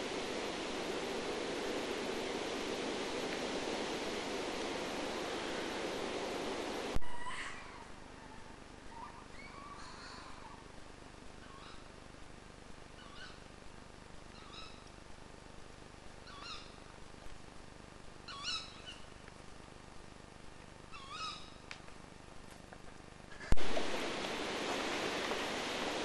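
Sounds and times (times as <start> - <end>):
low hiss: 0.0 - 26.0
faint bird call: 7.0 - 10.7, 11.4 - 11.9, 13.0 - 13.5, 18.3 - 19.1, 20.9 - 21.7.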